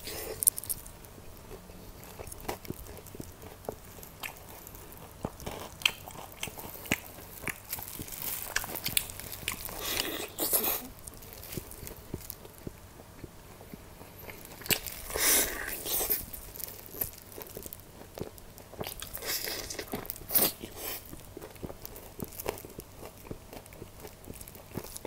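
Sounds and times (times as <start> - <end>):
chewing with small crackles: 0.0 - 25.0
crunchy bites of fried crust: 0.0 - 25.0.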